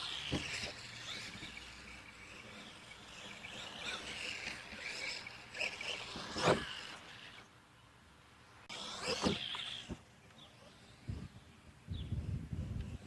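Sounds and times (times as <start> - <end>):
electric toy truck motor whining: 0.0 - 7.5, 8.7 - 11.5.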